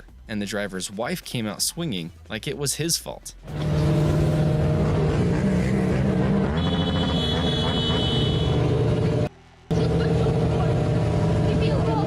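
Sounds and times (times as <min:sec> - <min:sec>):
vehicle engine running: 0:03.4 - 0:12.0.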